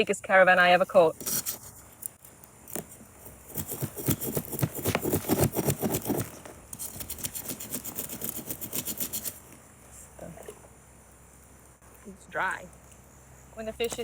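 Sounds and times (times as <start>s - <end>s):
knife scraping fish scales: 1.0s - 1.8s, 2.7s - 9.5s.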